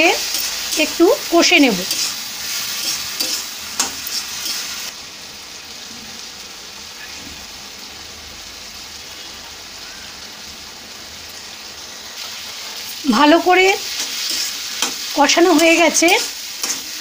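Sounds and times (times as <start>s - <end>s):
food sizzling in a pan: 0.0s - 17.0s
spatula scraping a pan: 1.8s - 4.9s, 13.9s - 17.0s.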